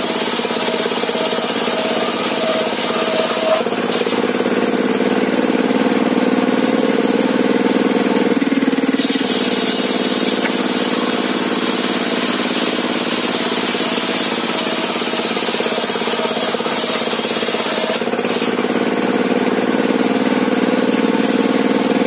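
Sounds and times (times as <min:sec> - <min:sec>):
table saw running: 0:00.0 - 0:22.0
hiss: 0:09.0 - 0:10.7.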